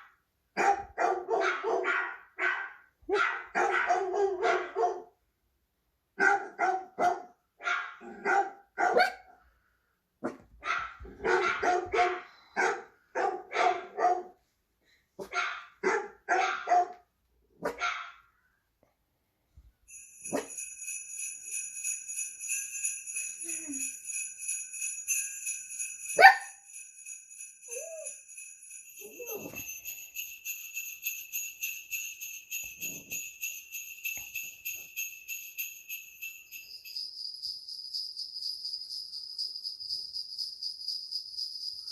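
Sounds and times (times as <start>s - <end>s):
dog barking: 0.6s - 5.2s, 6.2s - 9.4s, 10.2s - 14.4s, 15.2s - 18.3s, 20.3s - 20.6s, 26.2s - 26.5s
jingle bells shaking: 19.9s - 41.9s.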